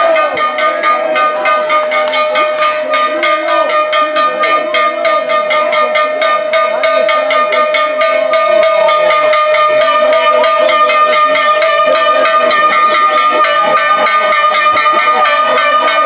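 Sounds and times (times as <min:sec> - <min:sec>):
cowbell beaten in fast rhythm: 0:00.0 - 0:16.0
steady high tone: 0:00.0 - 0:16.0.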